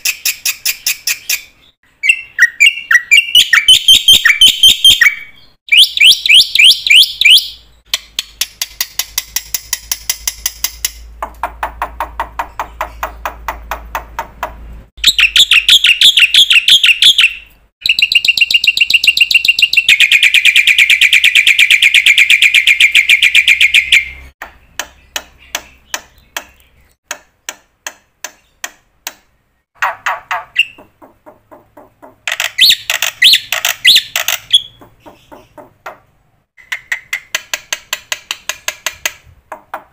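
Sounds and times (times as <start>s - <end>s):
high-pitched chirping bird-like calls: 0.0s - 8.4s, 15.0s - 27.0s, 29.8s - 37.3s.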